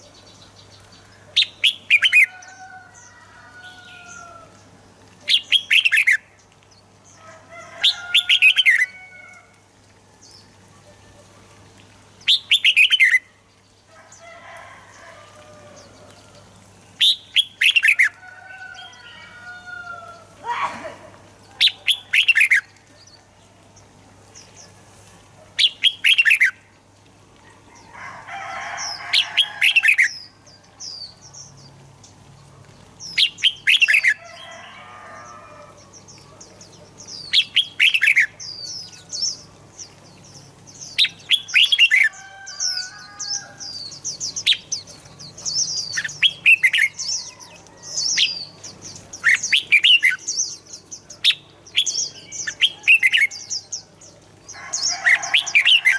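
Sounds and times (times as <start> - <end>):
bird singing warbled phrases: 0.0 - 2.6, 5.2 - 7.0, 12.2 - 13.8, 15.8 - 23.8, 25.5 - 26.7, 33.0 - 55.9.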